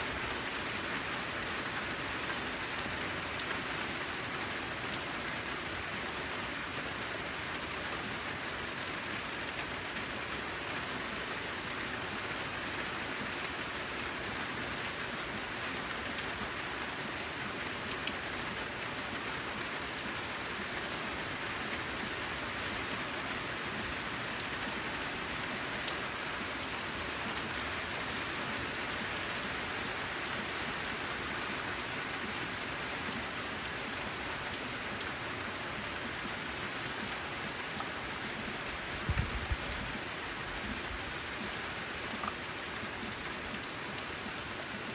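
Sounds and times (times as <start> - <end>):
rain on a metal roof: 0.0 - 44.9.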